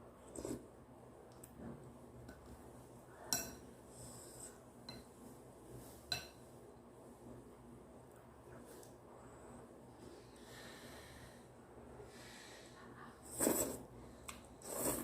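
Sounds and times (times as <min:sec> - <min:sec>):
faint breathing: 0:09.1 - 0:13.3.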